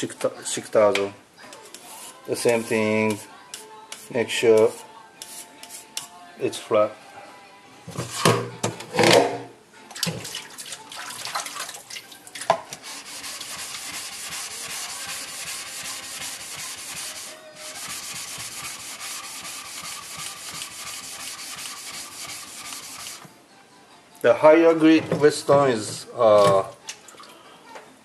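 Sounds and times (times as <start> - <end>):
whetstone rubbing: 1.6 - 6.1, 12.7 - 23.2.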